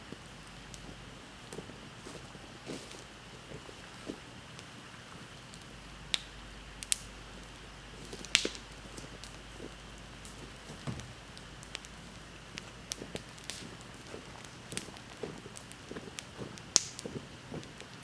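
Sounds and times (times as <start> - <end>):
low steady hiss: 0.0 - 18.0
wood bonfire crackling: 0.0 - 18.0.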